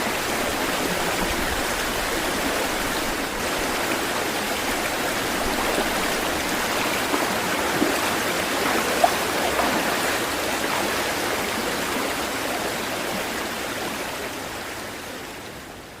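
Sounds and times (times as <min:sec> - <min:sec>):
water gurgling and splashing: 0:00.0 - 0:12.1
running water: 0:00.0 - 0:15.6.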